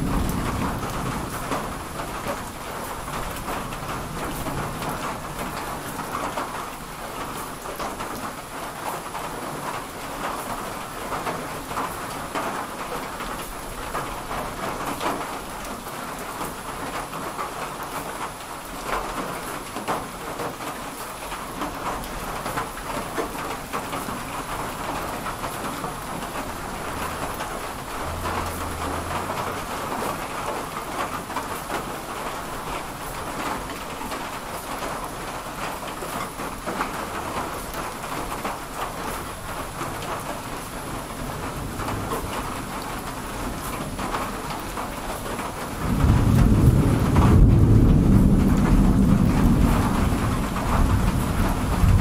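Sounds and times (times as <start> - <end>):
rumbling thunder: 0.0 - 5.8, 24.6 - 30.3, 39.4 - 44.2, 45.8 - 52.0
steady rain: 0.0 - 52.0.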